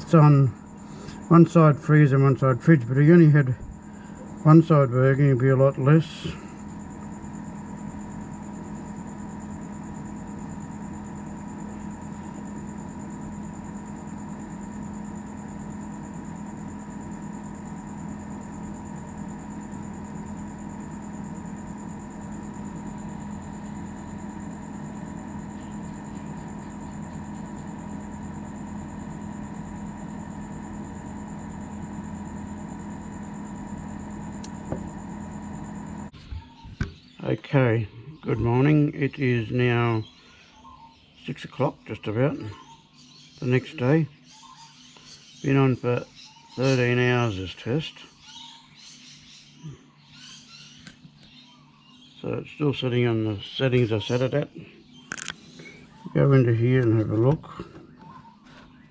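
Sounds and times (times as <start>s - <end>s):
thin high whine: 0.0s - 36.5s
machine hum: 0.0s - 42.6s, 43.2s - 58.9s.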